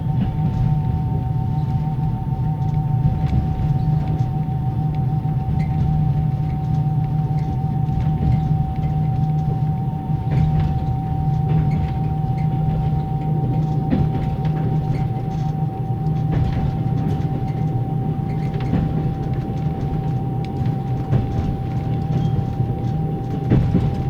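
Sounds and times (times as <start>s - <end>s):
deep rumble of train running gear: 0.0s - 24.0s
wheels clacking on rail joints: 10.3s - 24.0s.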